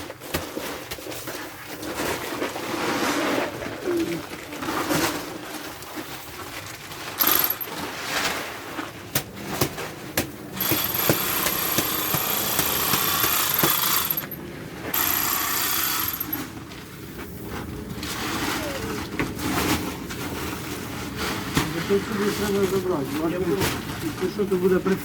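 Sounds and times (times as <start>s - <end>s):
bag sewing machine whining: 7.1s - 7.9s, 10.6s - 16.9s
sharp knocks: 9.2s - 14.4s.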